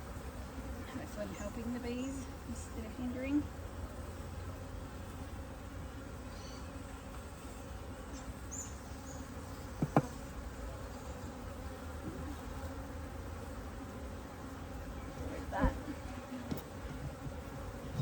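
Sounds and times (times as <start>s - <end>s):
honeybees humming: 0.0s - 18.0s.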